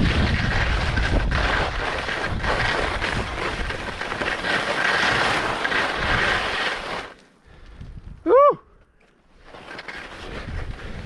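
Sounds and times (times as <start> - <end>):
wind buffeting microphone: 0.0 - 4.0, 7.6 - 8.3, 10.3 - 11.0
skis scraping over snow: 0.0 - 7.3, 9.4 - 11.0.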